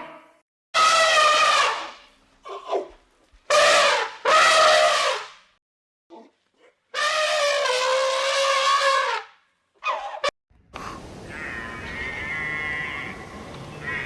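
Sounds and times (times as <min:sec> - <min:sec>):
elephant trumpeting: 0:00.8 - 0:02.0, 0:03.5 - 0:05.3, 0:07.0 - 0:10.3, 0:11.1 - 0:14.0.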